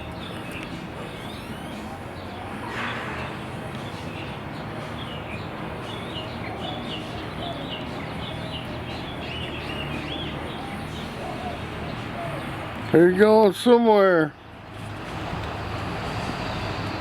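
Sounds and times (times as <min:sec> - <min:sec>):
small birds chirping: 0:00.0 - 0:13.5.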